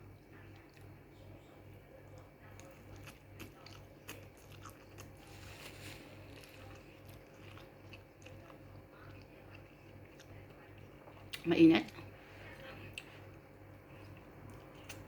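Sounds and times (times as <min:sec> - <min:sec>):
chewing and wet mouth clicks: 0:02.1 - 0:05.2, 0:06.4 - 0:12.0, 0:12.9 - 0:15.0.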